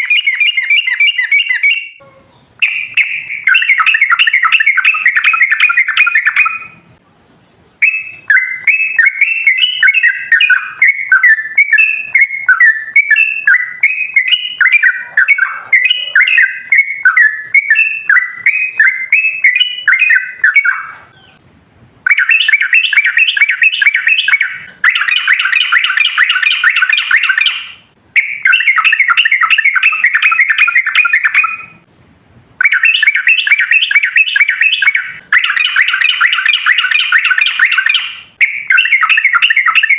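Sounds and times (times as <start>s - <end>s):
bird singing chattering notes: 0.0s - 2.0s, 7.6s - 21.4s.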